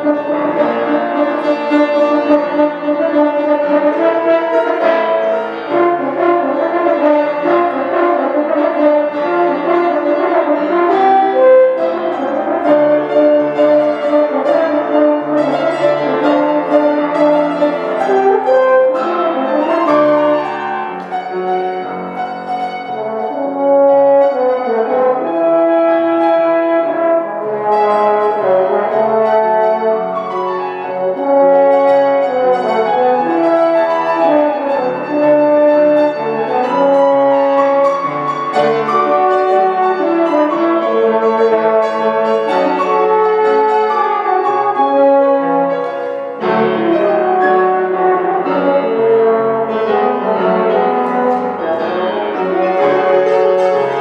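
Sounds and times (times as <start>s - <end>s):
brass ensemble playing melody: 0.0s - 54.0s.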